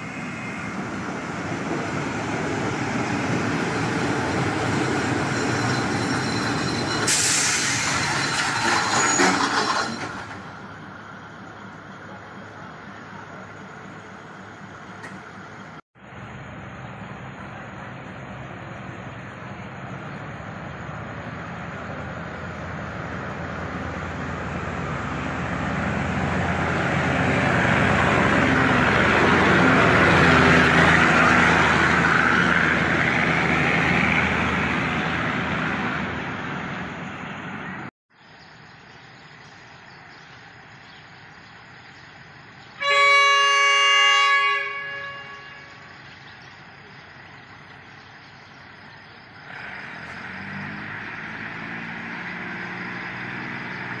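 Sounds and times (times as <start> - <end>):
passenger train passing: 0.0 - 37.9, 41.7 - 49.5
train horn: 42.8 - 46.0.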